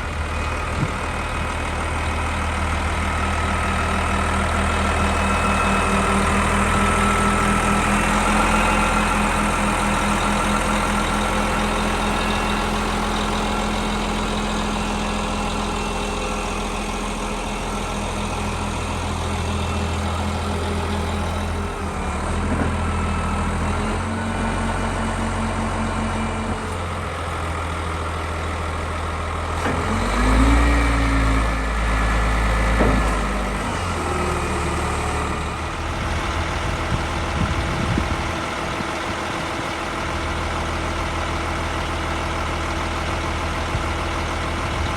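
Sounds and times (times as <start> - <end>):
diesel engine idling: 0.0 - 44.9.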